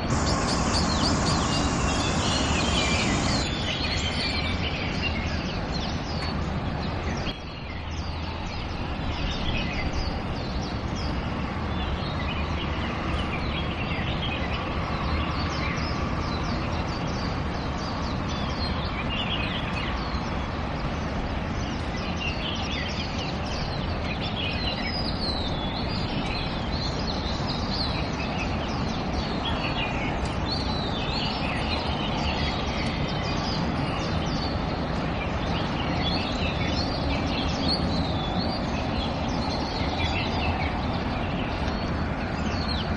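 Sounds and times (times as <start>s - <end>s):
low background rumble: 0.0s - 3.8s
bird chirps and calls: 0.0s - 5.2s.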